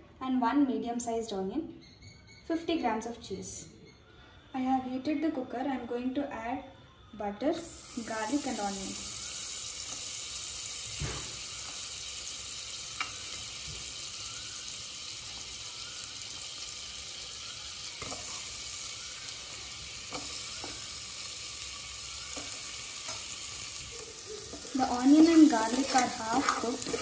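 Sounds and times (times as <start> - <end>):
butter sizzling in a pan: 7.6 - 27.0
food pieces knocking in a pan: 24.4 - 27.0.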